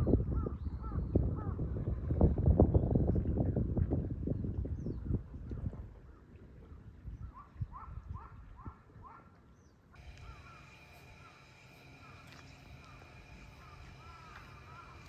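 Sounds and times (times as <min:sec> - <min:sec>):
arching animal calls: 0:10.0 - 0:15.0
high insect-like drone: 0:10.0 - 0:15.0.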